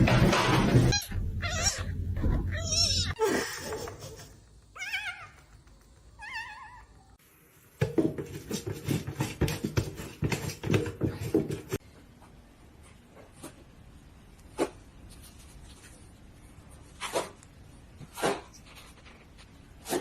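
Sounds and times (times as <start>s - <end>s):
cat meowing: 0.9s - 3.2s.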